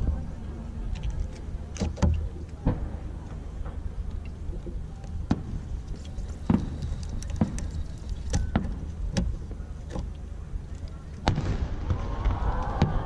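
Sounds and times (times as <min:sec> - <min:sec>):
low rumble: 0:02.3 - 0:13.0
fireworks cracks and bangs: 0:06.5 - 0:06.8, 0:11.3 - 0:13.0.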